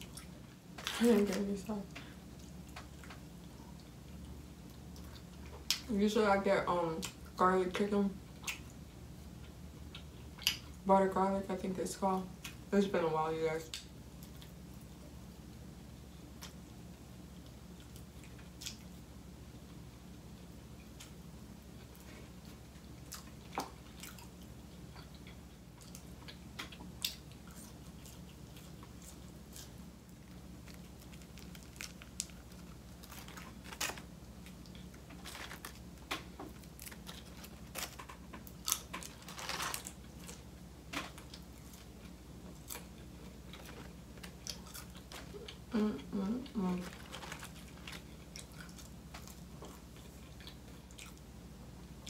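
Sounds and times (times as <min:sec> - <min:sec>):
steady low hum: 0:00.0 - 0:52.0
chewing chicken wing: 0:21.8 - 0:45.7, 0:46.4 - 0:51.3.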